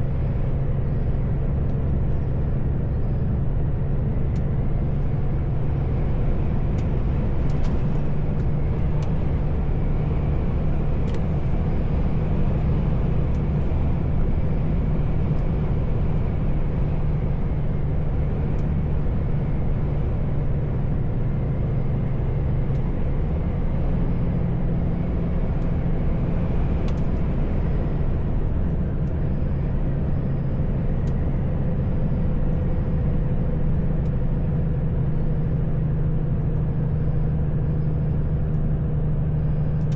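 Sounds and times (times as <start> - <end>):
road noise: 0.0 - 39.9
truck diesel engine running: 0.0 - 39.9.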